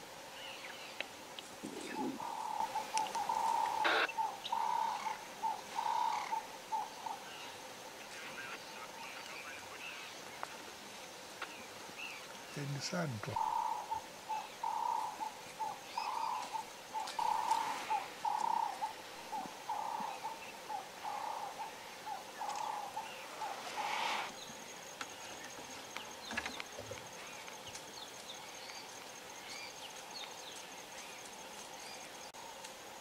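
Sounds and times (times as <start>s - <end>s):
high insect whine: 0.0s - 33.0s
bird hooting: 1.6s - 7.4s, 13.4s - 24.3s.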